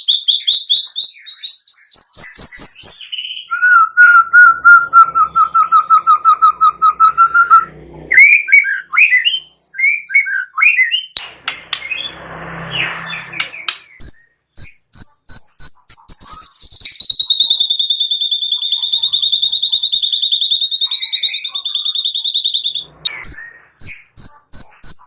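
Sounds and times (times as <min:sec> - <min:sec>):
bird singing varied song: 0:00.0 - 0:25.0.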